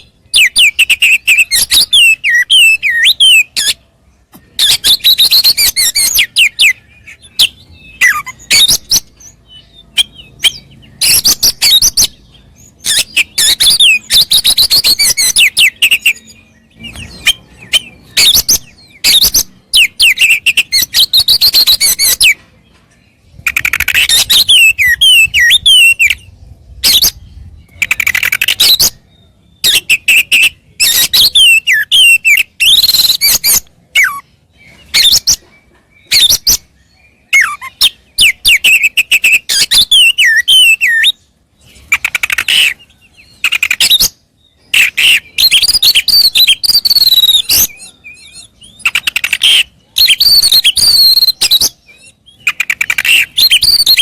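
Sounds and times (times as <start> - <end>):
bird singing whistles and trills: 0.0 - 22.5, 23.2 - 54.0.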